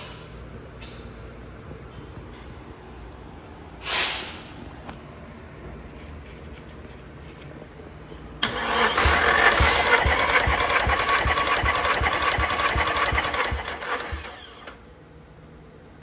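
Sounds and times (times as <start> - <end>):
engine cranking on starter motor: 8.4 - 14.9.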